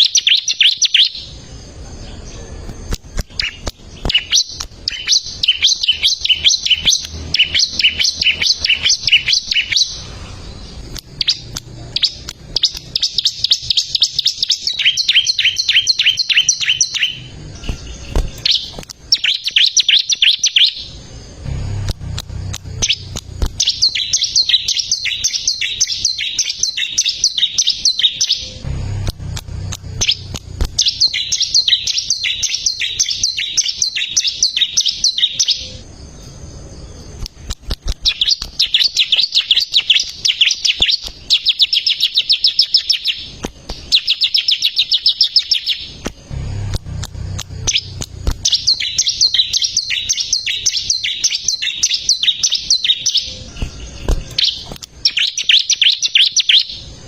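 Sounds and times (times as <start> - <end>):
bird trilling: 0.0 - 1.4, 3.3 - 21.1, 22.6 - 28.7, 29.6 - 35.8, 36.8 - 57.0
bird singing high chirps: 0.0 - 21.5, 22.2 - 57.0.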